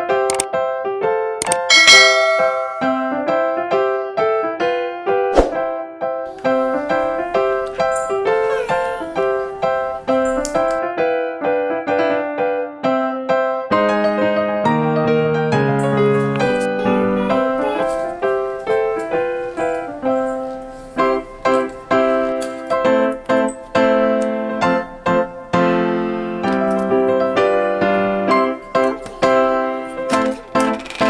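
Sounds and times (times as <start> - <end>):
piano music: 1.6 - 4.1, 5.4 - 10.8, 14.1 - 31.0.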